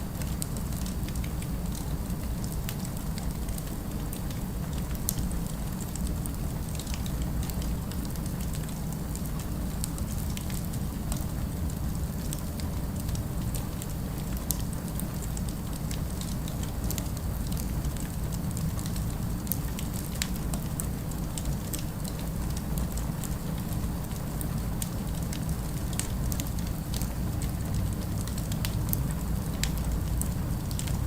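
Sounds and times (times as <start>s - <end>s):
city ambience rumble: 9.5s - 31.0s.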